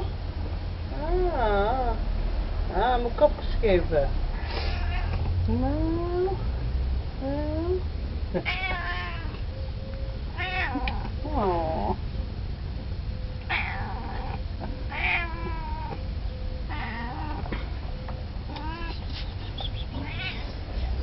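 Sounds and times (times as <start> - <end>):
cat meowing: 4.4 - 5.2, 8.4 - 9.4, 10.4 - 12.0, 13.5 - 16.0, 16.7 - 17.5, 18.5 - 19.1, 19.9 - 20.6.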